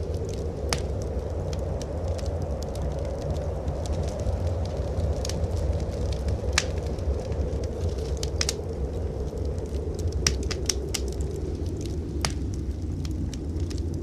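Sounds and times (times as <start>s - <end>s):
low fire rumble: 0.0s - 14.0s
wood fire crackling: 0.0s - 14.0s
sharp pops of fire: 0.1s - 4.1s, 5.1s - 8.6s, 10.0s - 11.3s, 12.2s - 13.8s.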